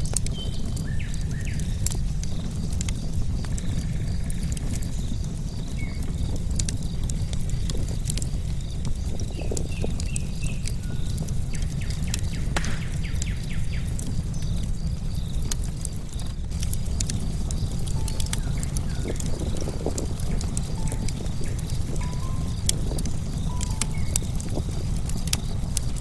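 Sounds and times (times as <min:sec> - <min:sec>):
bonfire crackling and popping: 0:00.0 - 0:26.0
crickets chirping: 0:00.4 - 0:26.0
bird chirps: 0:17.5 - 0:25.7.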